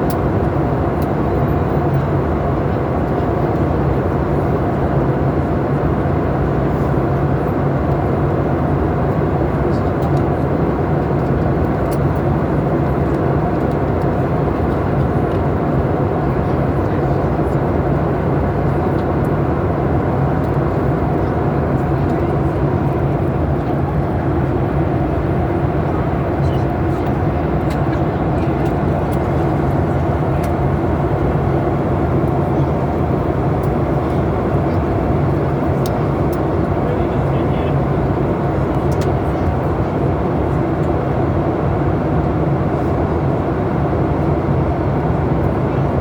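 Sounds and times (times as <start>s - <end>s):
airliner cabin engine roar: 0.0s - 46.0s.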